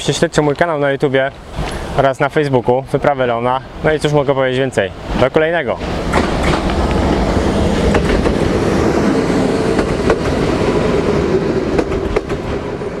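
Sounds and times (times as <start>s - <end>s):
train wheels rumbling on rail: 0.0s - 13.0s
wheels clicking over rail joints: 5.8s - 12.9s.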